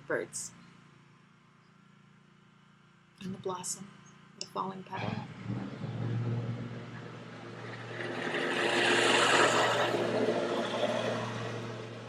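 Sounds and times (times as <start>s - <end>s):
steady low hum: 0.0s - 12.0s
passing vehicle rushing: 5.0s - 12.0s.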